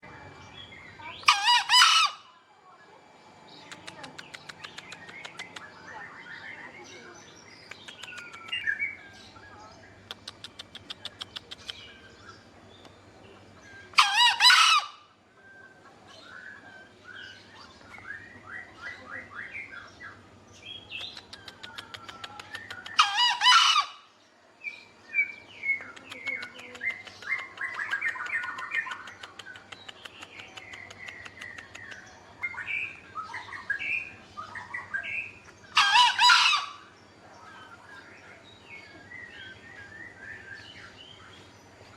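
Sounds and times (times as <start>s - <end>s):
small birds chirping and trilling: 0.0s - 41.9s
junglefowl crowing: 1.2s - 2.4s, 14.0s - 15.1s, 22.9s - 24.1s, 35.7s - 36.9s.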